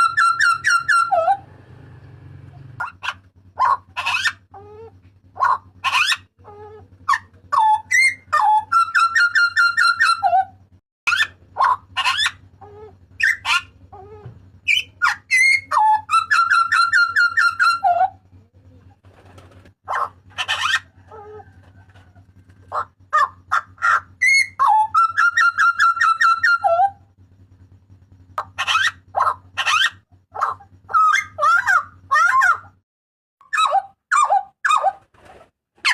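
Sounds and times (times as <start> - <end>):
bird giving whistled calls: 13.2 - 13.7, 14.6 - 18.1, 23.5 - 27.0.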